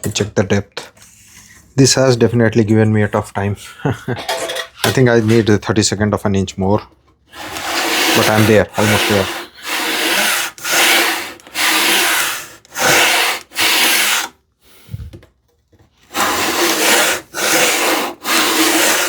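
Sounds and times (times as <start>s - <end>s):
hand tool rasping in wood: 7.3s - 14.4s, 16.1s - 19.0s.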